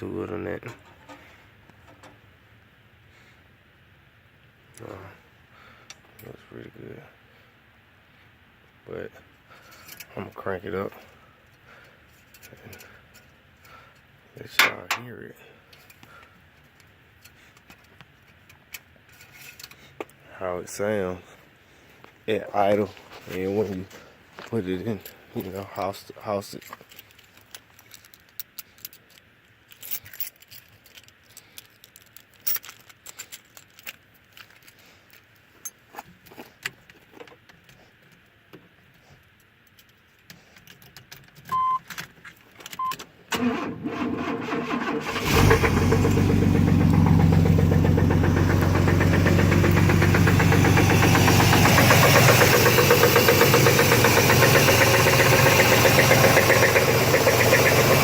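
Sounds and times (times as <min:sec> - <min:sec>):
keys rattling and clicking: 0:26.6 - 0:38.3
short beeps: 0:41.5 - 0:41.8
car starter cranking: 0:42.8 - 0:58.0
car engine idling: 0:45.0 - 0:58.0.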